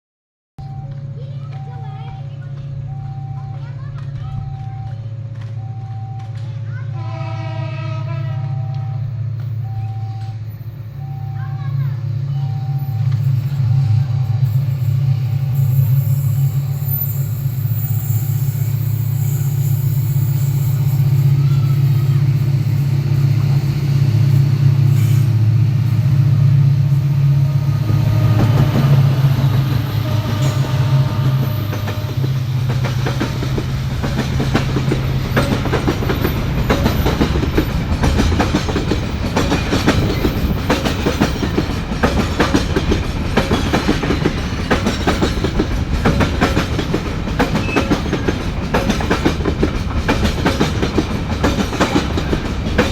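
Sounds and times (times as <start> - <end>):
wheels clacking over rail joints: 18.3 - 52.9
diesel engine drone: 20.8 - 41.0.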